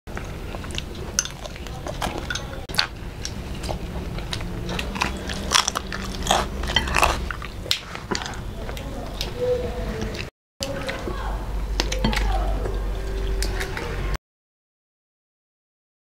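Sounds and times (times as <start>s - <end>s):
crunching and chewing fried fish: 0.1s - 9.4s
wet mouth sounds: 0.2s - 9.4s.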